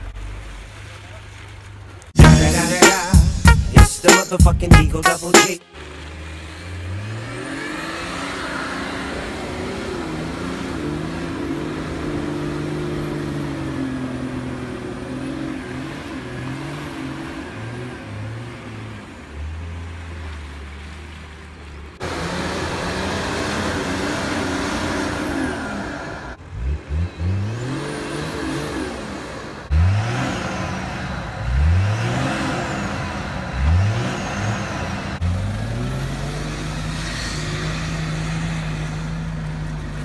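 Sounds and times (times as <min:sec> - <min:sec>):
engine revving: 0:05.7 - 0:19.7, 0:22.0 - 0:40.0.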